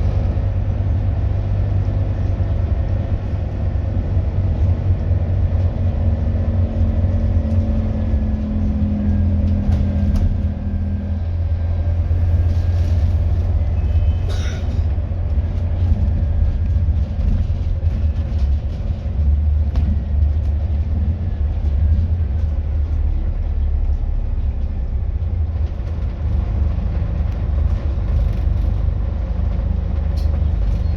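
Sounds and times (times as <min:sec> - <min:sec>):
bus diesel engine rumbling: 0:00.0 - 0:30.9.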